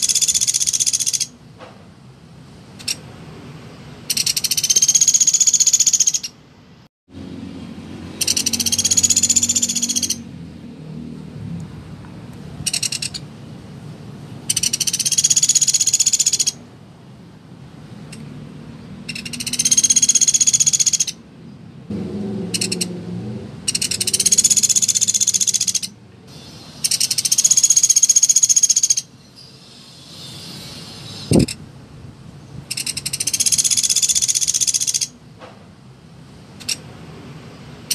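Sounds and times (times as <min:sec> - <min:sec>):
woodpecker rattling trills: 0:00.0 - 0:01.3, 0:04.1 - 0:06.4, 0:08.2 - 0:10.2, 0:12.7 - 0:13.3, 0:14.5 - 0:16.6, 0:19.1 - 0:21.2, 0:22.5 - 0:22.9, 0:23.7 - 0:26.0, 0:26.8 - 0:29.1, 0:32.7 - 0:35.2.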